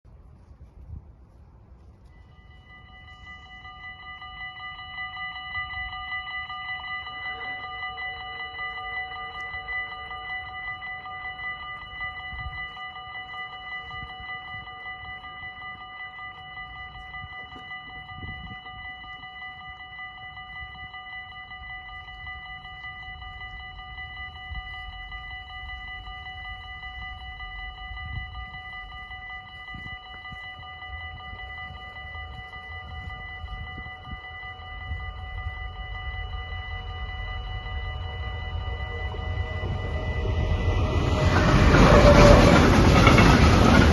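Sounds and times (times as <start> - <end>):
level-crossing warning bells: 1.7 - 43.9
low rumble: 32.9 - 43.9.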